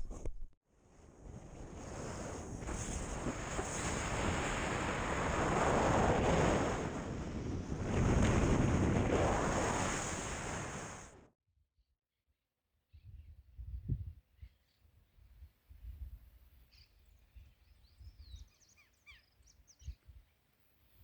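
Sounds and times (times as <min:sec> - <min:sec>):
wind buffeting microphone: 0:01.2 - 0:11.2.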